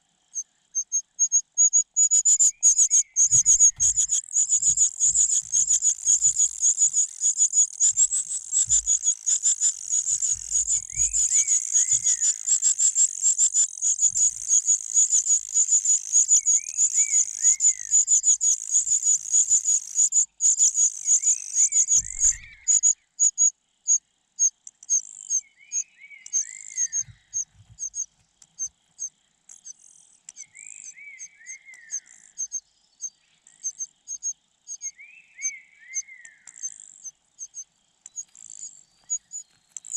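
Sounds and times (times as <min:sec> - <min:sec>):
nestling birds begging chirps: 0:00.3 - 0:39.9
bird call falling notes: 0:07.8 - 0:13.0.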